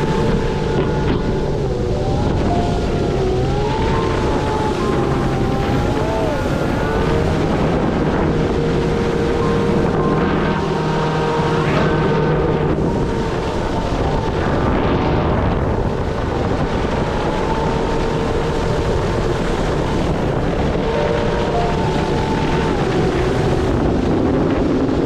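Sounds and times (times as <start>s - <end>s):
electric motor whine: 0.0s - 25.0s
water rushing: 0.0s - 25.0s
wind on microphone: 0.0s - 25.0s.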